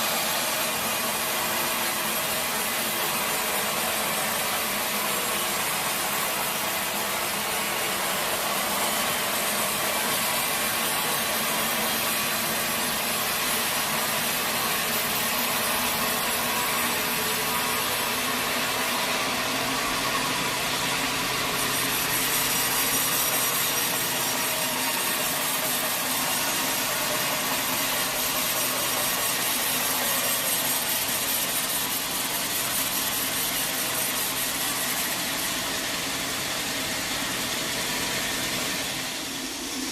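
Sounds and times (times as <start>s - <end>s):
sawmill saw cutting log: 0.0s - 39.9s.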